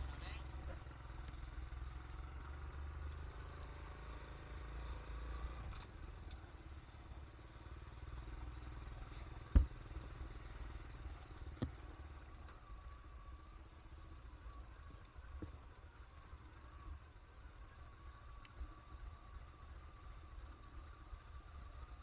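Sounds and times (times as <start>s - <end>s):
vehicle rumbling: 0.0s - 22.0s.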